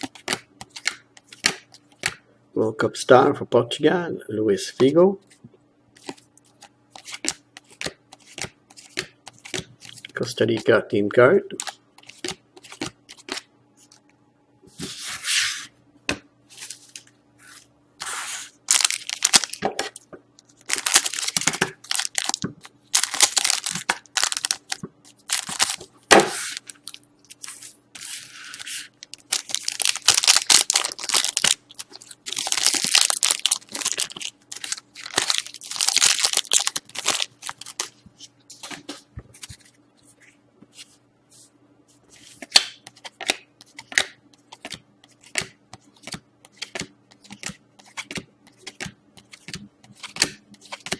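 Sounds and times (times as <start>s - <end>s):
foil wrapper tearing and crinkling: 18.1s - 19.6s, 20.6s - 22.4s, 23.0s - 25.8s, 26.4s - 37.9s.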